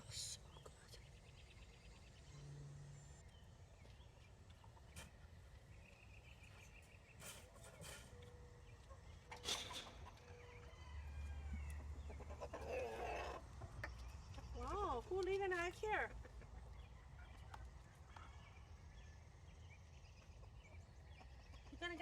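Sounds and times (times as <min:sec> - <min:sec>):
chickens clucking: 0:04.0 - 0:18.5.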